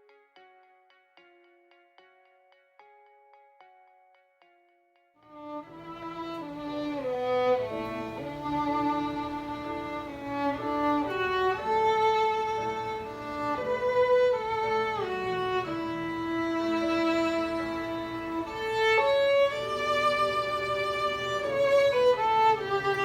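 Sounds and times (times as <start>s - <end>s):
slow violin melody: 5.2s - 23.0s.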